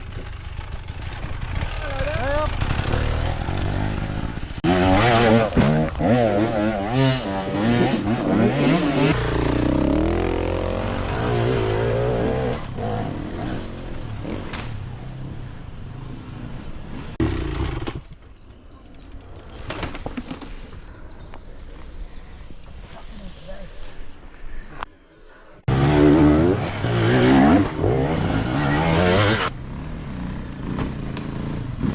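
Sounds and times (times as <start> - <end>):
motorcycle engine revving: 0.0 - 18.1, 25.7 - 31.9.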